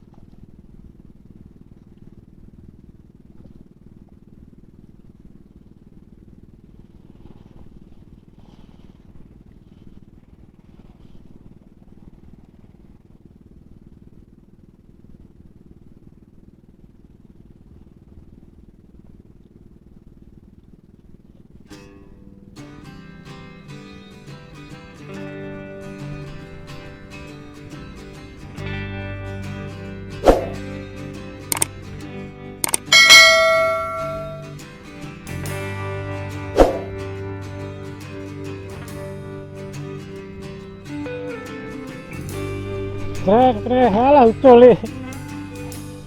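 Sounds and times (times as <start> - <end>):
low motor drone: 25.0 - 46.0.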